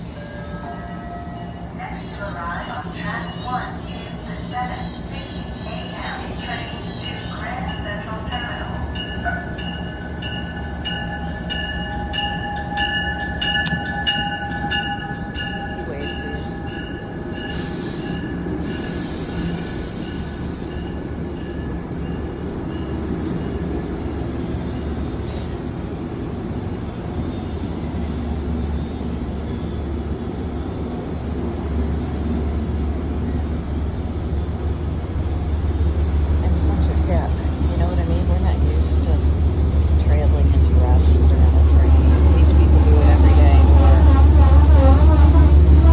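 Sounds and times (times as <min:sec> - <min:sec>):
low train rumble: 0:00.0 - 0:45.9
train wheels squealing: 0:16.6 - 0:21.5
train wheels pulsing: 0:33.8 - 0:45.9.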